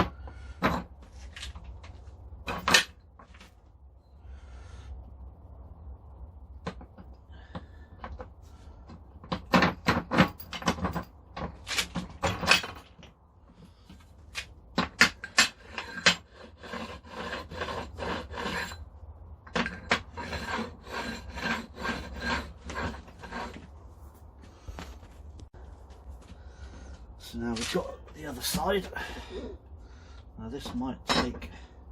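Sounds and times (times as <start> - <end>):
hand tool rasping steel: 14.8 - 18.9, 19.5 - 23.7.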